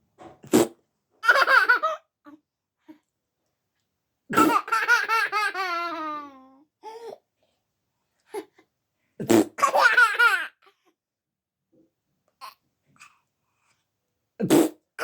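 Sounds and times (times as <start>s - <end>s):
toddler laughing: 4.4s - 6.6s.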